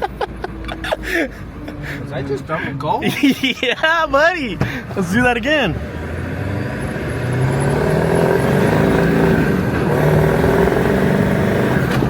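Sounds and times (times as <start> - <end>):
diesel engine accelerating hard: 5.4 - 12.0.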